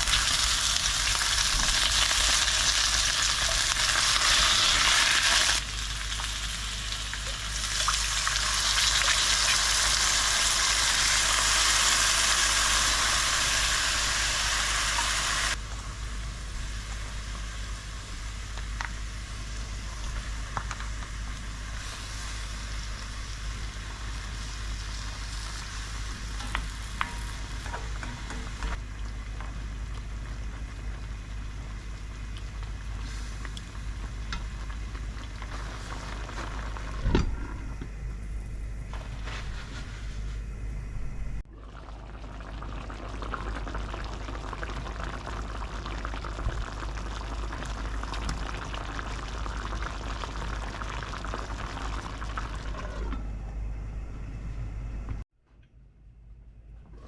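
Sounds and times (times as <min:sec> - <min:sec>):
food sizzling in a frying pan: 0:00.0 - 0:37.0, 0:41.7 - 0:53.1
soft bubbling: 0:41.5 - 0:53.4.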